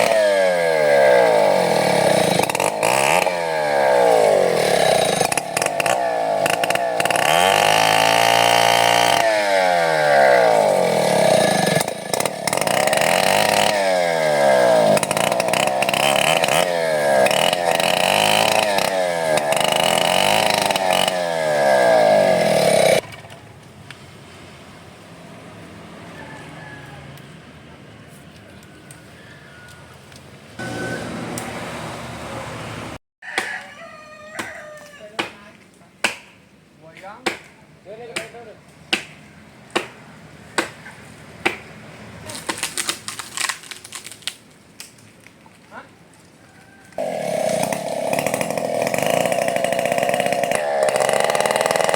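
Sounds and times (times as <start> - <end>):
chainsaw cutting wood: 0.0 - 23.2, 30.6 - 31.8, 42.3 - 44.4, 46.9 - 51.9.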